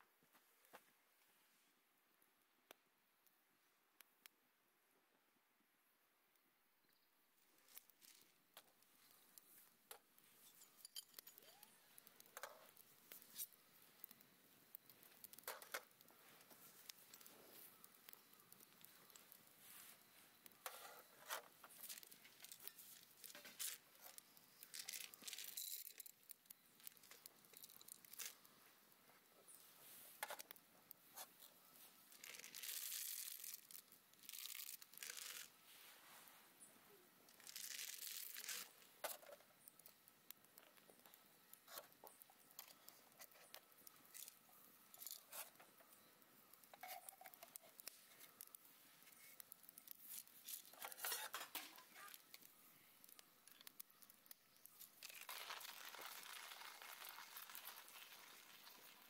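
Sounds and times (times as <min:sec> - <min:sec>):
small clicks: 0:07.6 - 0:28.5, 0:37.3 - 0:59.0
packaging rustling and tearing: 0:21.0 - 0:28.4, 0:32.1 - 0:35.5, 0:37.3 - 0:38.8, 0:46.7 - 0:59.0.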